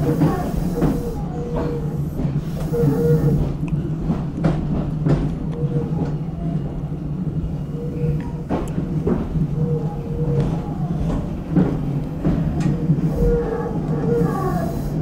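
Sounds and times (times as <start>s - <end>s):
electric train hum: 0.0s - 15.0s.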